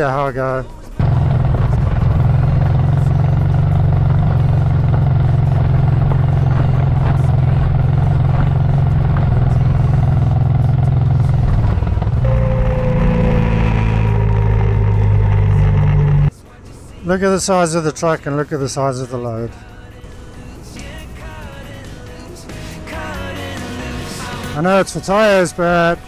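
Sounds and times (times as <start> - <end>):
motorcycle engine running: 1.0 - 16.3
wind drone on microphone: 6.0 - 16.3
pitched tone sliding downward: 9.4 - 16.3.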